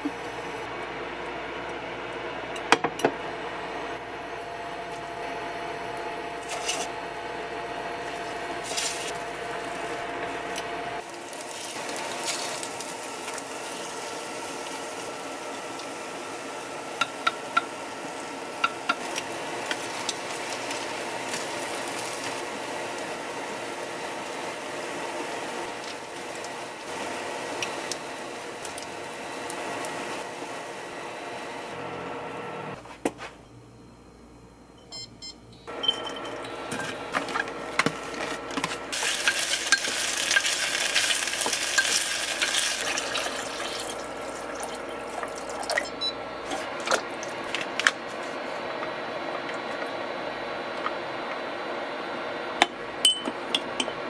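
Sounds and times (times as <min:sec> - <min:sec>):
food sizzling in a frying pan: 0:11.0 - 0:30.8, 0:38.9 - 0:45.6.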